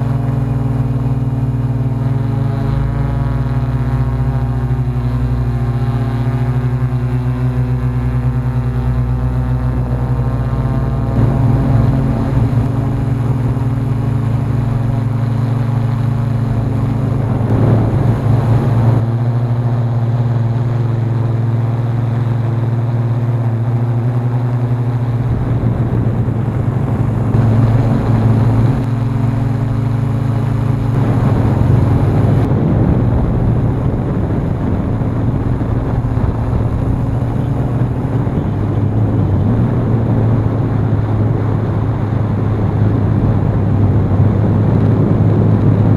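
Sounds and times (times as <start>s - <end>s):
drone propellers humming: 0.0s - 45.9s
wind buffeting microphone: 0.0s - 45.9s.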